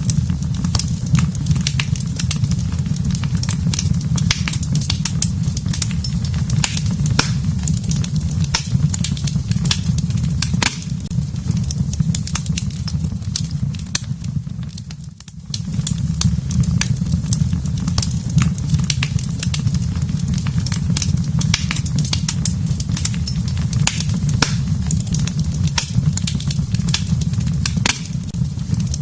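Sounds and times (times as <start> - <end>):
fire crackling and popping: 0.0 - 29.0
low rumble of flames: 0.0 - 29.0.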